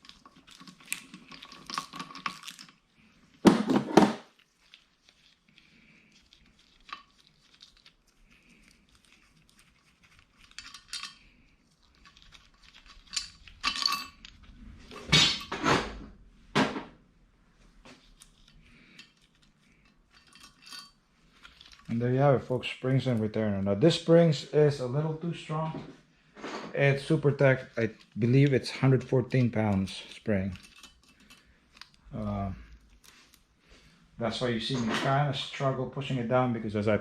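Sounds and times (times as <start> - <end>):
metal parts clinking: 0.1 - 2.8, 10.3 - 11.4, 12.0 - 15.7, 18.1 - 22.0, 28.0 - 32.0.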